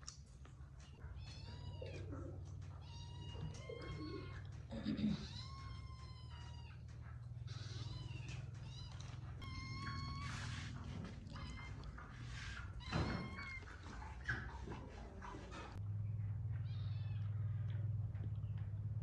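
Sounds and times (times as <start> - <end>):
cat meowing: 1.0 - 4.5, 5.1 - 6.9, 7.5 - 13.7, 16.7 - 17.4
low hum: 1.6 - 19.0.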